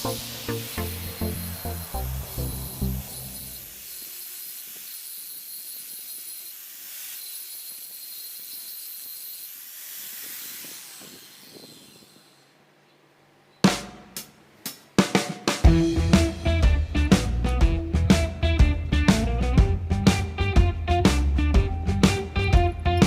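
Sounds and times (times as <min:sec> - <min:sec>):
hissy high sweep: 0:00.0 - 0:04.9
drum hits: 0:15.0 - 0:23.0
band music: 0:15.6 - 0:23.0.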